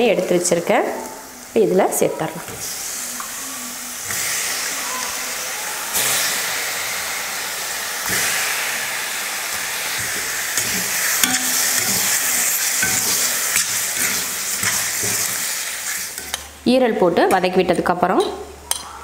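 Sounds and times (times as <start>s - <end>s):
liver sizzling in hot oil: 0.0s - 16.6s
spatula scraping a pan: 9.8s - 16.4s.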